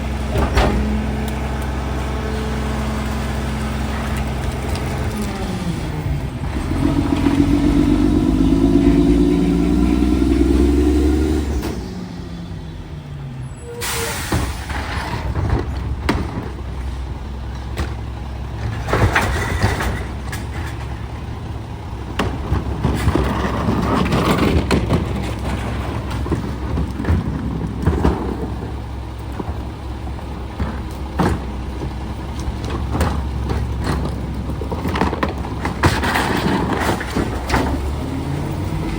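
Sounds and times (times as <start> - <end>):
garbage truck engine revving: 0.0 - 38.9
low engine rumble: 0.0 - 38.9
clanks and knocks: 14.4 - 21.2, 22.1 - 38.1.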